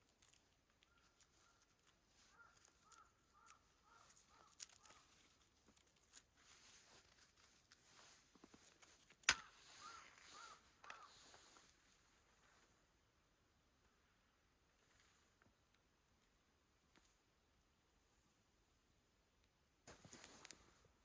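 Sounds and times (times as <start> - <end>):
faint bird calls: 0.8 - 5.2, 9.4 - 11.6.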